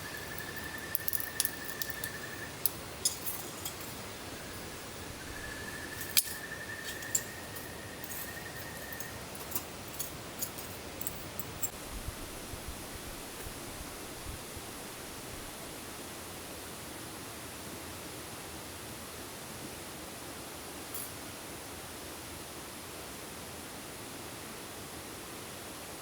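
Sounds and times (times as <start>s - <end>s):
sharp ticks: 0.0s - 4.9s
rain hissing: 0.0s - 11.7s.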